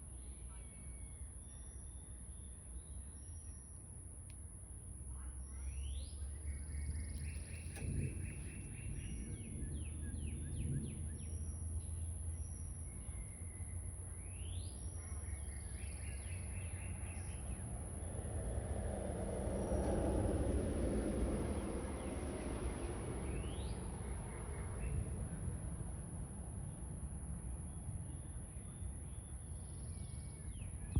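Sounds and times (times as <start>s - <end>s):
songbird singing: 0.0s - 25.9s, 26.6s - 30.9s
constant high-pitched tone: 0.0s - 30.9s
low steady rumble: 0.0s - 30.9s
rushing noise of vehicle: 5.8s - 13.0s, 15.8s - 27.4s.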